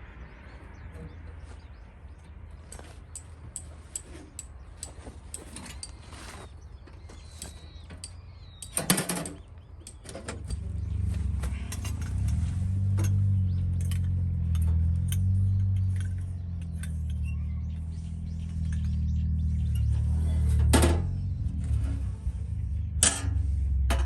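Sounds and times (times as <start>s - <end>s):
small clicks and rattles: 7.3s - 12.4s
steady low hum: 9.5s - 24.0s.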